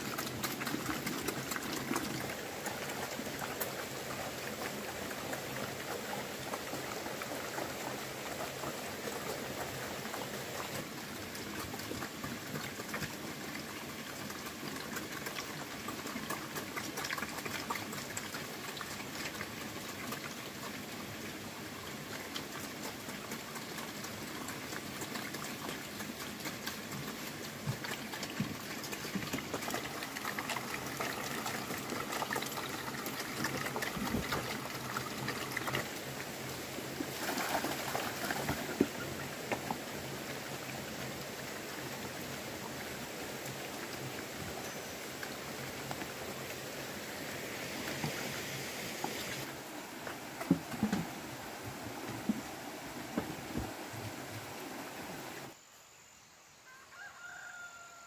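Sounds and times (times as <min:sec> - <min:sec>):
rain pattering: 0:00.0 - 0:13.4.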